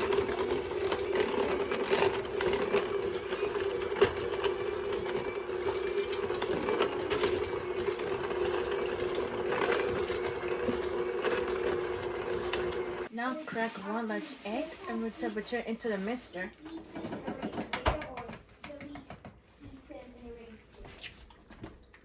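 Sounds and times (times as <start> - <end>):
electric mixer running: 0.0 - 13.1.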